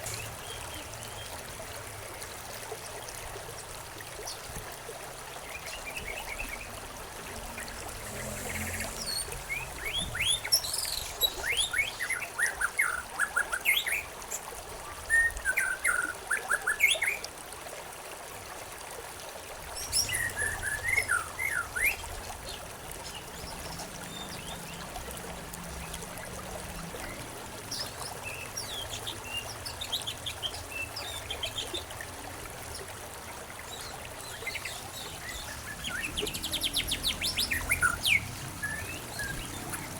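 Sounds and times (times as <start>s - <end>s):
trickle of running water: 0.0s - 39.9s
songbirds chirping and singing: 7.4s - 14.0s, 19.8s - 25.0s, 33.7s - 39.9s.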